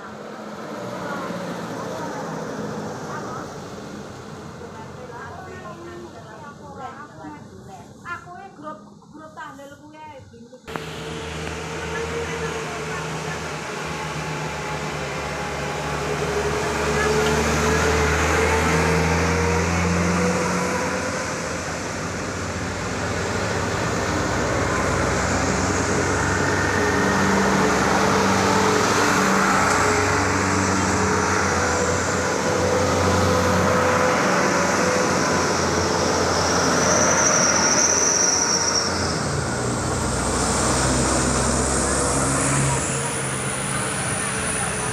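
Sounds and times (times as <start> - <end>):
truck engines droning: 0.0 - 7.6, 10.7 - 44.9
tyre and road noise: 10.7 - 44.9.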